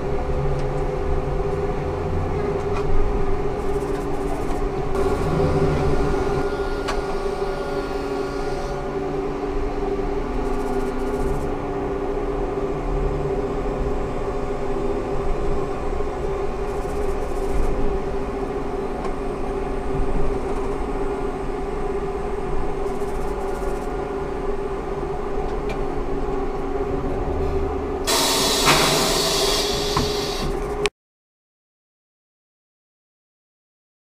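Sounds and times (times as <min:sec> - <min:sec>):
low rumble: 0:00.0 - 0:30.8
trolleybus electrical hum and whine: 0:00.0 - 0:30.9
compressed air hiss: 0:28.1 - 0:30.7.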